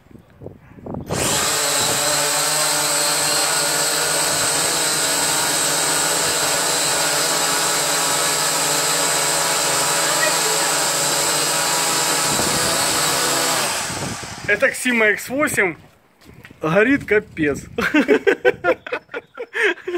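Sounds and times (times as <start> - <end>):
quadcopter propellers buzzing: 1.1 - 14.8.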